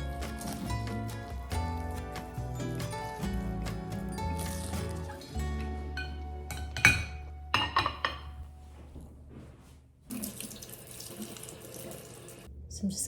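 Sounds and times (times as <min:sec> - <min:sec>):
soft background music: 0:00.0 - 0:09.8
glass dishes clinking: 0:05.9 - 0:08.4
kitchen tap running: 0:10.1 - 0:12.5.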